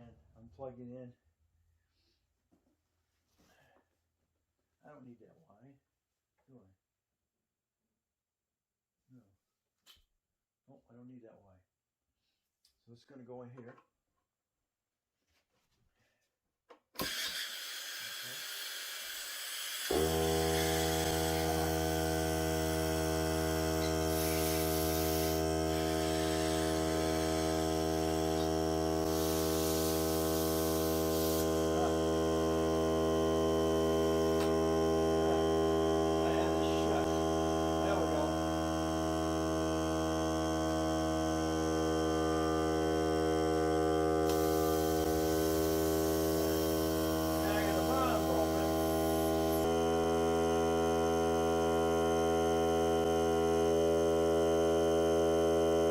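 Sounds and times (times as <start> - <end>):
air compressor droning hum: 19.9 - 55.9.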